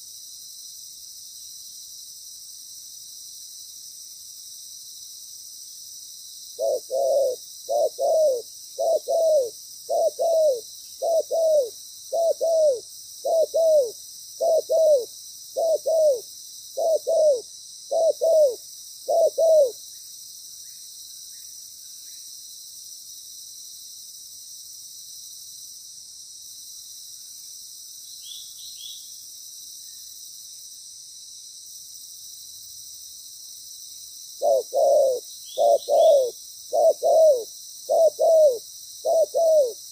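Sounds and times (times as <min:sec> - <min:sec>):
dove cooing: 0:06.6 - 0:19.8, 0:34.4 - 0:39.8.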